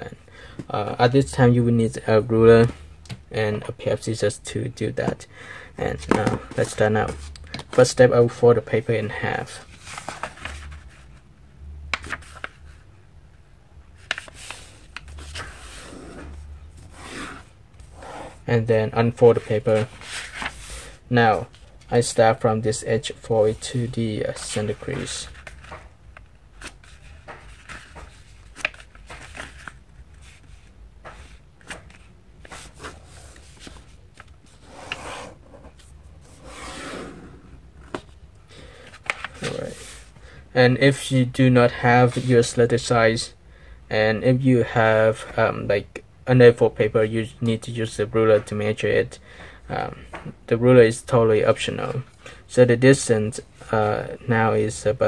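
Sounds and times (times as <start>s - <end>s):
paper being folded and creased: 9.7s - 11.1s, 14.0s - 17.4s, 19.4s - 20.8s, 26.6s - 36.7s, 38.9s - 40.0s
paper taps and rustles: 24.4s - 29.8s, 31.0s - 32.8s.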